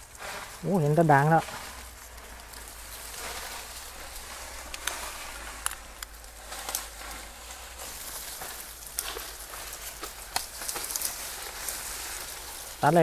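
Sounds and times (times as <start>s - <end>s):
leaves and twigs rustling: 0.0s - 13.0s
twigs snapping: 1.4s - 13.0s.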